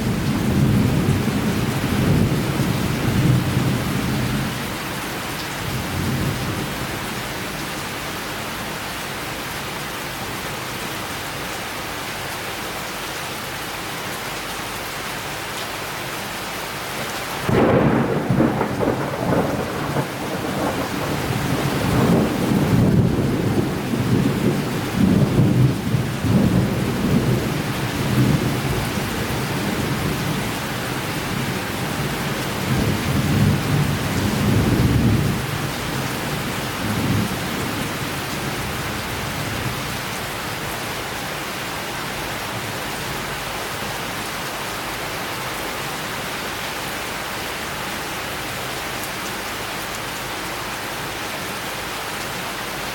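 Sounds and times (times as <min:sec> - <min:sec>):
steady rain falling: 0:00.0 - 0:52.9
rolling thunder rumbles: 0:17.4 - 0:40.1
thunderclap: 0:17.5 - 0:23.7.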